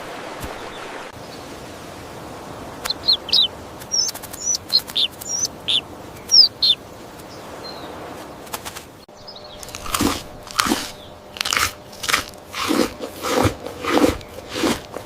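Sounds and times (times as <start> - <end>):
small birds chirping: 2.7 - 8.1, 9.0 - 12.1, 13.8 - 15.0.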